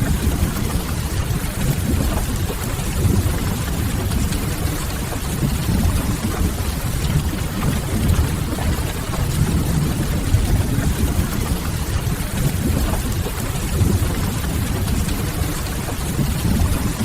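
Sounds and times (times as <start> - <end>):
steady rain: 0.0 - 17.0
deep even rumble: 5.5 - 12.0
crackling wood fire: 5.5 - 12.2.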